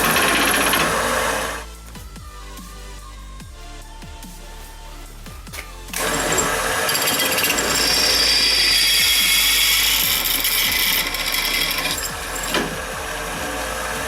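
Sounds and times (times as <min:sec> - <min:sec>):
power tool whining on steel: 0:00.0 - 0:01.7, 0:05.9 - 0:14.0.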